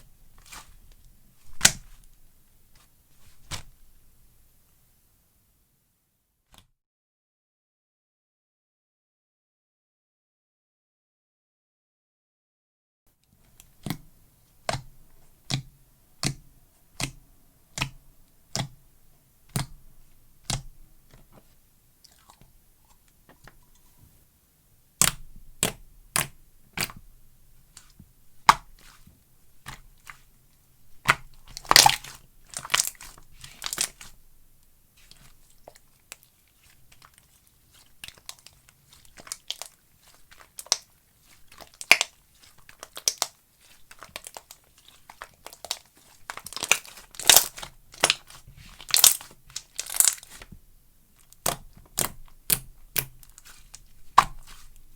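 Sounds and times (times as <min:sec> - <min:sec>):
slime clicking and popping: 0:25.0 - 0:27.0, 0:31.0 - 0:34.1, 0:41.7 - 0:42.1, 0:45.6 - 0:50.4, 0:51.3 - 0:54.6.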